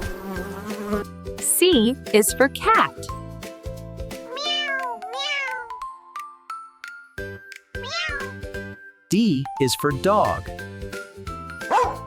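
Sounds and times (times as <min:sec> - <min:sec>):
children's music with bass beat: 0:00.6 - 0:12.0
cat meowing: 0:04.3 - 0:05.7, 0:07.8 - 0:08.4.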